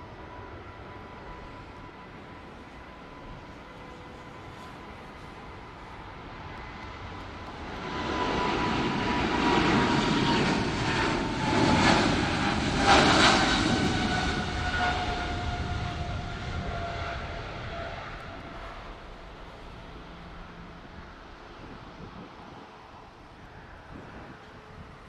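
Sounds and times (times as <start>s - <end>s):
jet aircraft passing by: 0.0s - 25.0s.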